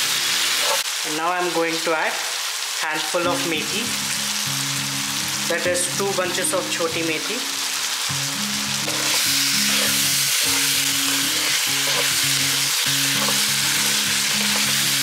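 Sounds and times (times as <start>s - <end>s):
curry sizzling in a pan: 0.0s - 15.0s
soft background music: 3.2s - 15.0s.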